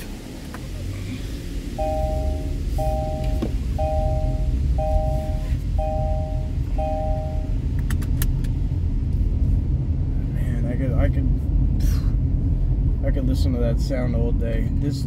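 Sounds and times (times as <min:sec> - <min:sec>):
steady low rumble: 0:00.0 - 0:15.0
car warning chime beeping: 0:01.7 - 0:07.7
sharp clicks: 0:07.7 - 0:08.6.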